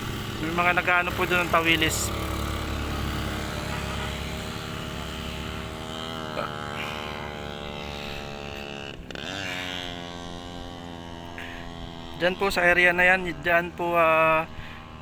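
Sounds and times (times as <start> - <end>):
motor engine running: 0.0 - 15.0.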